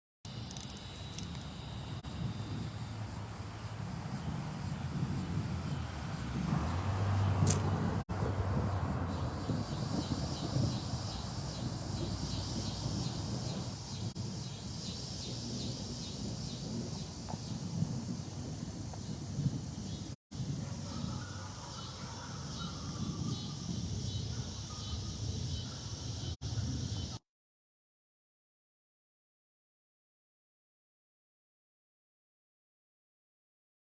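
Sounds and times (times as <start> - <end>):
wind buffeting microphone: 0.3 - 27.2.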